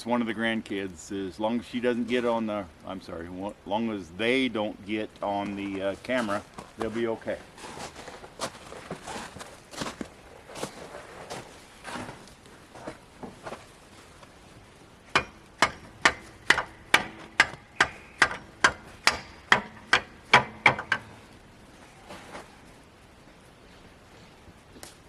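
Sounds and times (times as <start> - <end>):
metal hammer blows on pin: 15.2 - 21.2.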